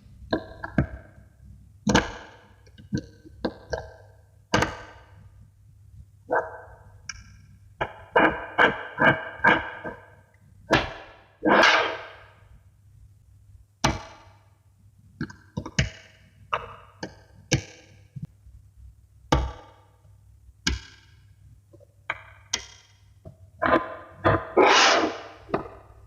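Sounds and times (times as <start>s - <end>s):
magnetic balls clicking together: 20.6s - 24.4s.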